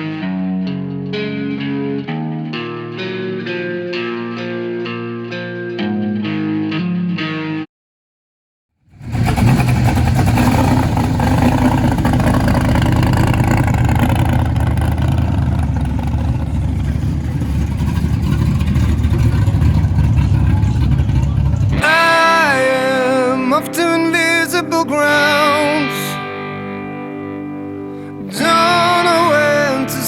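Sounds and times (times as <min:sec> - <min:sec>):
car engine with rough exhaust: 0:08.9 - 0:21.8.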